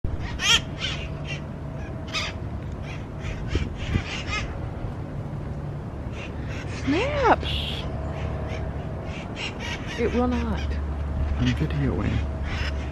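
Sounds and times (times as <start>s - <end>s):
parrot squawking harshly: 0.2s - 4.5s.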